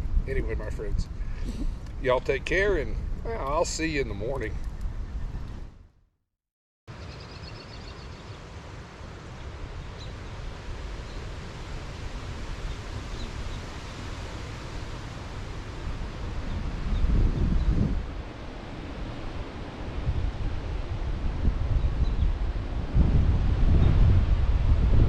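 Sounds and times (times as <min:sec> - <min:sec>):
wind rumbling on microphone: 0:00.0 - 0:06.0, 0:07.2 - 0:25.0
faint bird chirps: 0:06.9 - 0:08.4.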